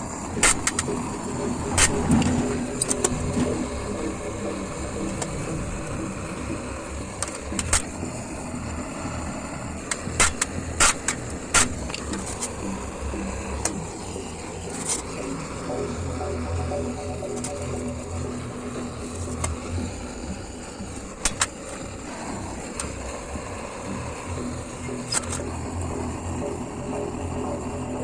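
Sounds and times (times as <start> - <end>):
steady background rush: 0.0 - 28.0
hammer striking metal grate: 10.0 - 12.2.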